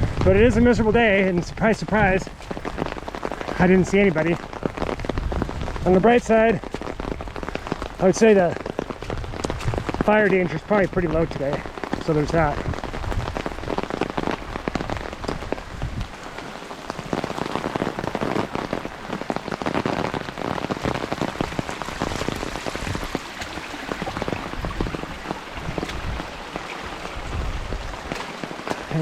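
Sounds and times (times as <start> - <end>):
rain pattering: 0.0 - 29.0.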